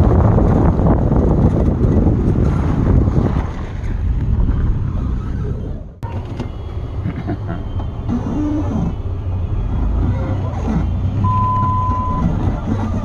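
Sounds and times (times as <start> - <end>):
car engine low rumble: 0.0 - 13.0
short squeaks: 7.7 - 9.1, 10.0 - 13.0.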